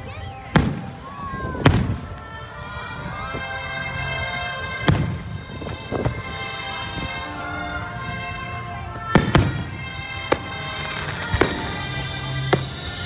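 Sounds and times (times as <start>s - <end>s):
music with held notes: 0.0s - 13.0s
firework bursts booming: 0.3s - 2.4s, 9.1s - 13.0s.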